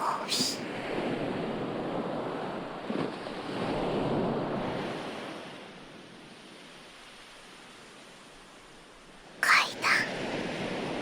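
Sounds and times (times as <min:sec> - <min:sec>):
ocean waves washing ashore: 0:00.0 - 0:11.0.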